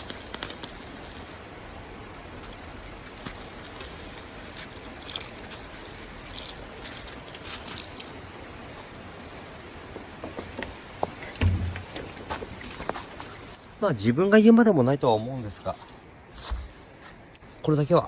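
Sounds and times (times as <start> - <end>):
campfire hissing and crackling: 0.0 - 15.0
dull knock: 11.4 - 12.0.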